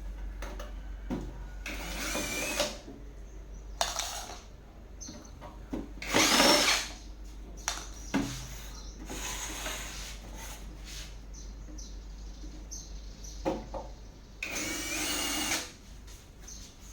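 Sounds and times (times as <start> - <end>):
small electric motor whirring: 1.7 - 2.8, 14.4 - 15.8.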